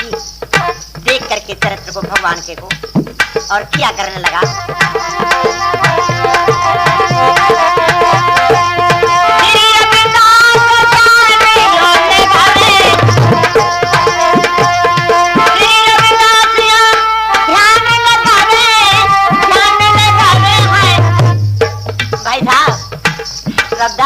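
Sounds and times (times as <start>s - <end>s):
tabla rhythm: 0.0s - 24.0s
bending melody line: 3.6s - 16.0s.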